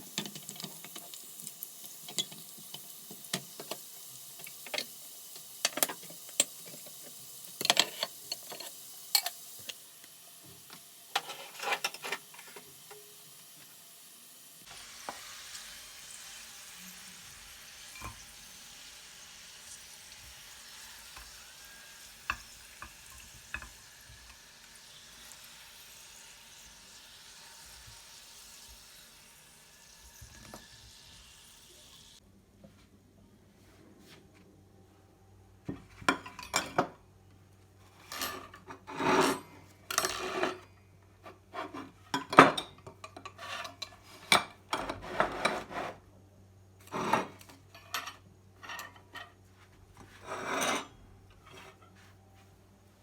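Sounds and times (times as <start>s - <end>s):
food sizzling in a pan: 0.0s - 32.2s.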